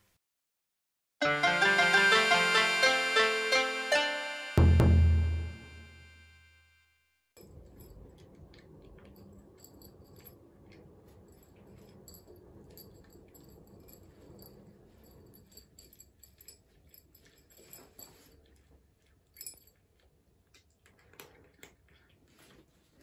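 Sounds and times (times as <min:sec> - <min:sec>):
cat chewing and licking: 0:07.4 - 0:23.0.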